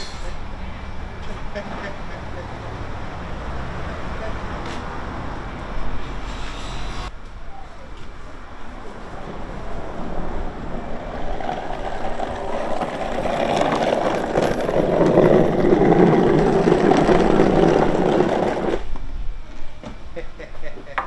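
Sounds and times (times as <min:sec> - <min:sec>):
wooden cart wheels rumbling on road: 0:08.6 - 0:19.1.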